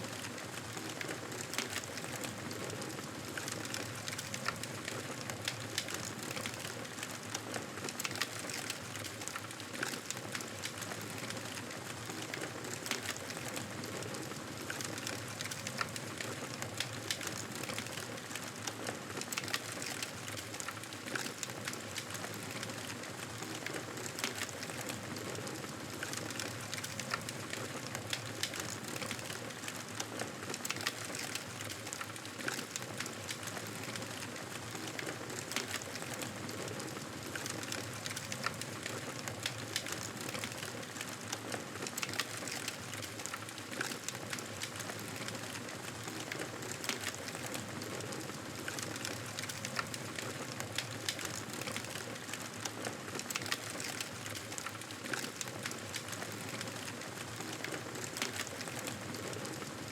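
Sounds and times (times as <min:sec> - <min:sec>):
wood fire crackling and popping: 0:00.1 - 0:59.9.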